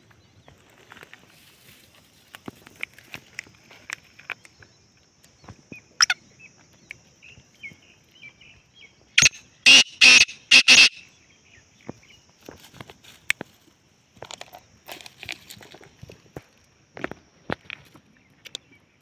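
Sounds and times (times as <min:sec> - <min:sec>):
faint chirps: 0:04.3 - 0:12.4
bird harsh grating call: 0:09.2 - 0:11.1.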